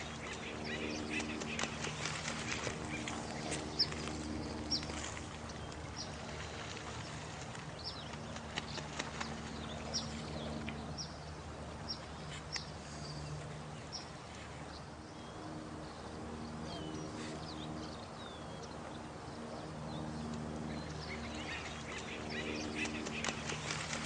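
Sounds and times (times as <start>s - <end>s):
running water: 0.0s - 15.1s, 20.5s - 24.0s
low drone: 0.0s - 24.0s.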